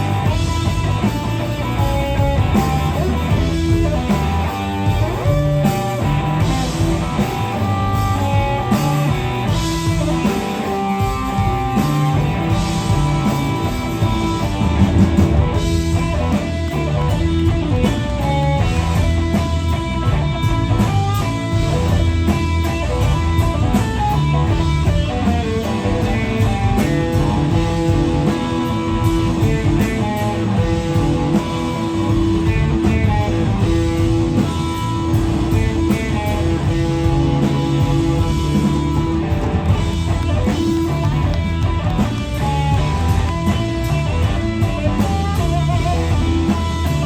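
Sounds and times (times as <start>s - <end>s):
bass: 0.0s - 47.0s
drums: 0.0s - 47.0s
electric guitar lead: 0.0s - 47.0s.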